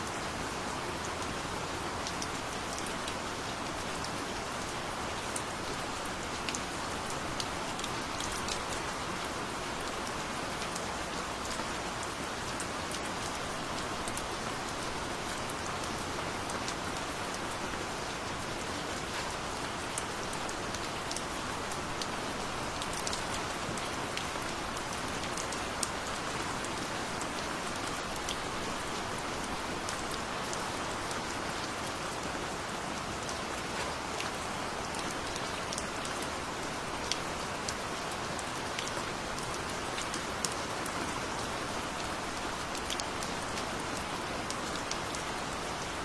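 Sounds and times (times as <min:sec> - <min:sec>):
gentle rain: 0:00.0 - 0:46.0
raindrops ticking on a surface: 0:00.0 - 0:46.0.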